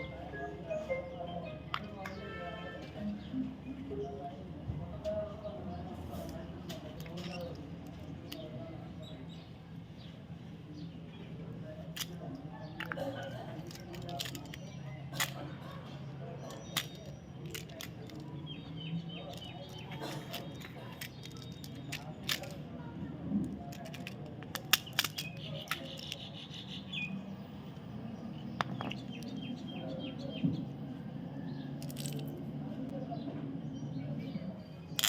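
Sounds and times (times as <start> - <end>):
wrappers crinkling: 12.8 - 15.4, 16.7 - 18.2, 19.3 - 22.6.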